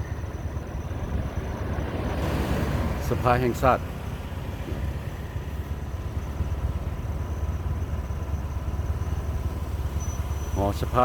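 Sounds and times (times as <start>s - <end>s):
motorcycle engine running: 3.9s - 11.0s.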